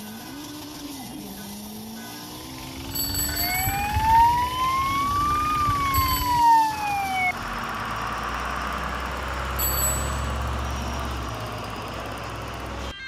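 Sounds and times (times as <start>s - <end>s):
vehicle engine rumble with hiss: 0.0s - 13.0s
police siren wailing: 2.5s - 7.9s.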